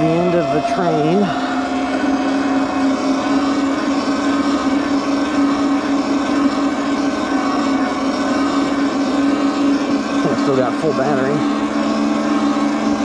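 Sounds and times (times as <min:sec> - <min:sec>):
electric motor whine: 0:00.0 - 0:13.0.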